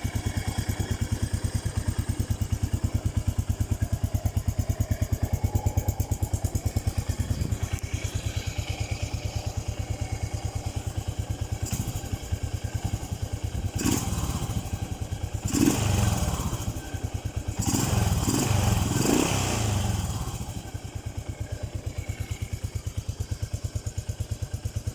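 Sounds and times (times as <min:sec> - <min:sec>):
motorcycle engine idling and revving: 0:00.0 - 0:24.9.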